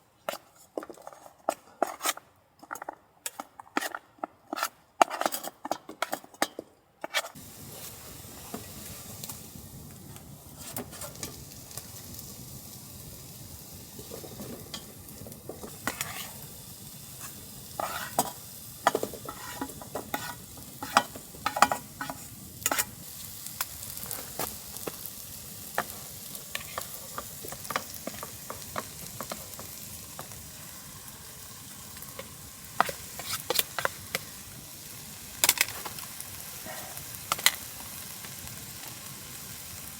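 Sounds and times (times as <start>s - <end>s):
food sizzling in a hot pan: 7.4s - 39.9s
utensil clicking and scraping: 32.1s - 34.3s.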